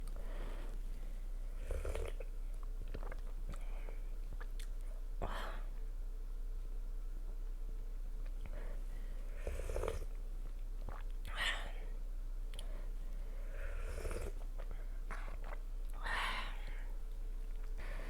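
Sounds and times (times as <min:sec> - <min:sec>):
person chewing food: 0:01.9 - 0:04.9, 0:14.1 - 0:16.0
wet mouth noises: 0:10.8 - 0:11.4, 0:14.1 - 0:16.0.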